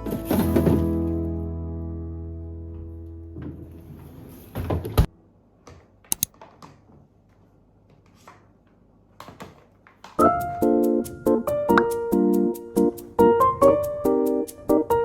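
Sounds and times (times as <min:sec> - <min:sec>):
music: 0:00.0 - 0:04.1, 0:10.2 - 0:15.0.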